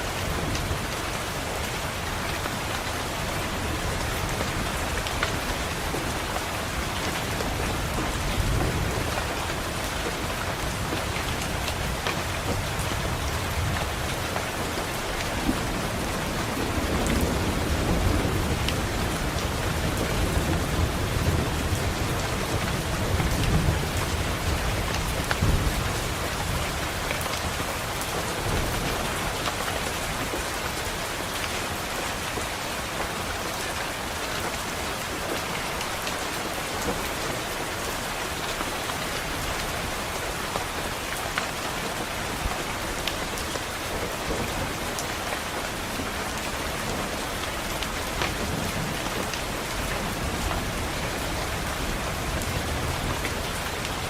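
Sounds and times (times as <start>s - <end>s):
rain pattering on a window: 0.0s - 54.0s
rolling thunder: 15.4s - 27.0s.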